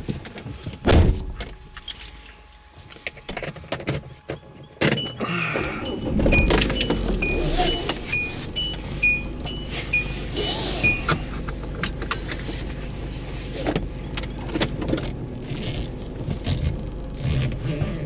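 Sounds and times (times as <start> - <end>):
keys jangling: 1.6 - 2.4, 4.9 - 11.2
car door shutting: 4.8 - 11.5
dashboard warning chime beeping: 4.9 - 11.4
car engine starting and running: 4.9 - 18.0.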